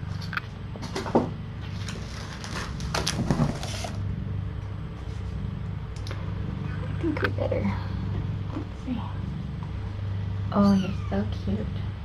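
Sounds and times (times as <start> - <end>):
rustling and clicking handling noise: 0.0 - 4.1
steady low hum: 0.0 - 12.0.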